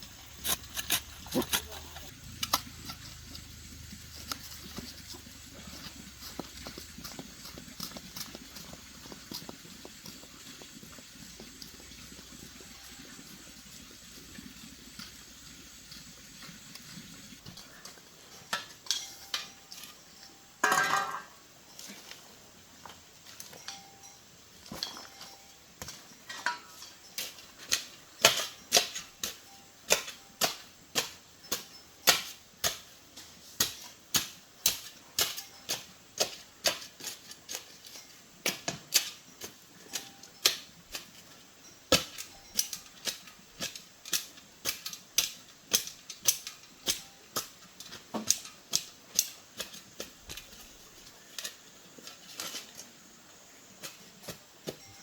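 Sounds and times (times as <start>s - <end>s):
hard objects clicking and tapping: 20.6s - 21.4s, 25.8s - 50.7s.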